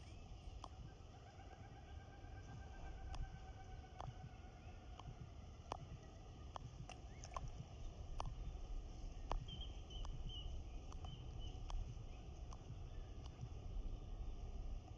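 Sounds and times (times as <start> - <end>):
sharp clicks: 6.5 - 8.4
bird chirping: 6.9 - 14.5.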